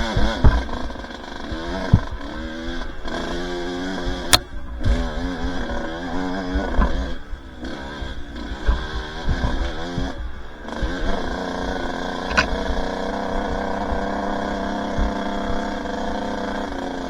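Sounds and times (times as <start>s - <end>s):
two-stroke dirt bike engine: 0.0s - 17.0s
sharp click: 12.3s - 12.8s.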